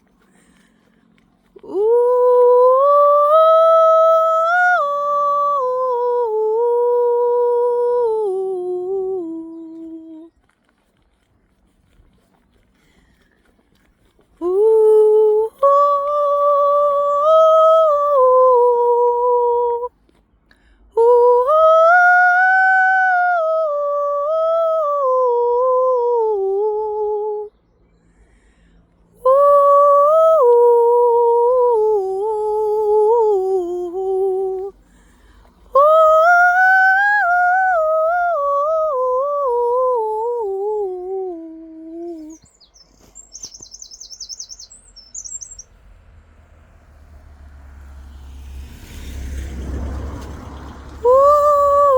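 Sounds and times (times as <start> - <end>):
breaths: 0.1 - 1.4, 12.5 - 14.4, 20.4 - 21.0, 27.9 - 29.1, 34.7 - 35.8
person holding wordless tones: 29.2 - 34.8, 35.7 - 45.8, 51.0 - 51.9.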